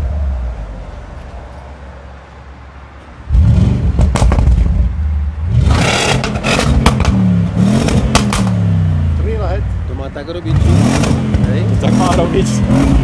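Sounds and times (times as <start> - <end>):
car engine starting and revving: 3.3 - 9.6, 10.2 - 13.0
exhaust pops and crackles: 3.8 - 4.9, 5.7 - 7.2, 7.8 - 8.6, 10.9 - 13.0.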